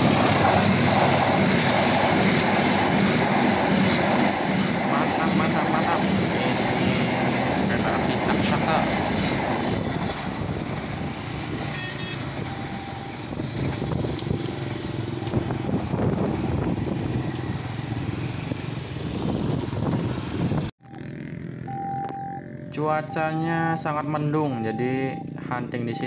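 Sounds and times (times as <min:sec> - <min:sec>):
train wheels clattering on rails: 0:00.0 - 0:11.8
train engine drone: 0:00.0 - 0:26.0
steady tone: 0:20.8 - 0:26.0.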